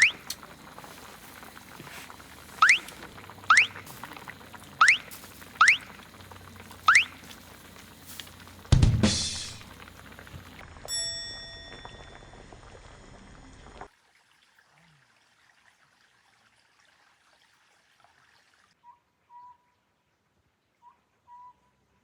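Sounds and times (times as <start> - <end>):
faint steady hiss: 0.0 - 11.9
bird whistling short notes: 2.6 - 2.9, 3.5 - 3.8, 4.8 - 5.9, 6.9 - 7.2
ringing chime: 10.9 - 12.4.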